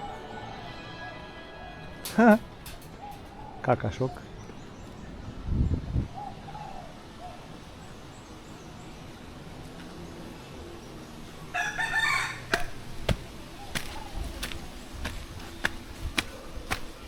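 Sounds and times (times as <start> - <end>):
rooster crowing: 11.5 - 13.0.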